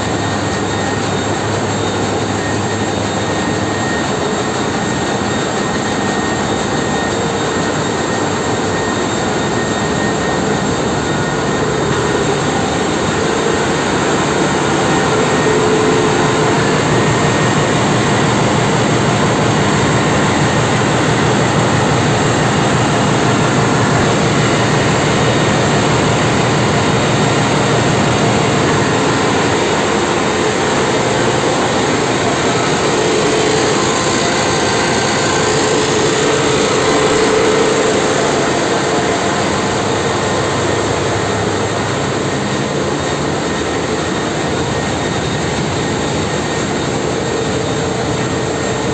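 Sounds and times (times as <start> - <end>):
constant hum: 0.0 - 48.9
engine room machinery din: 0.0 - 48.9.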